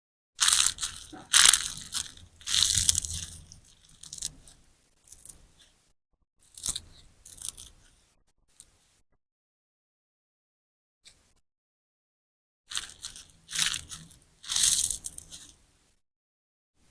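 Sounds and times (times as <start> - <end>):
slime sponge squelching: 0.4 - 5.3.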